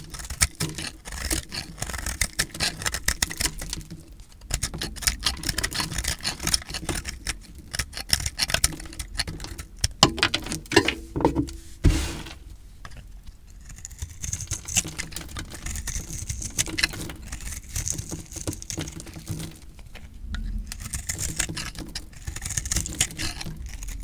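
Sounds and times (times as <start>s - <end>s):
knife cutting through dry soap: 10.0s - 12.5s.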